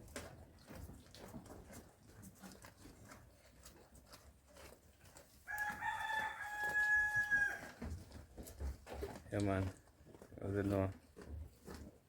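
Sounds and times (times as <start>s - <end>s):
rooster crowing: 5.5s - 7.7s.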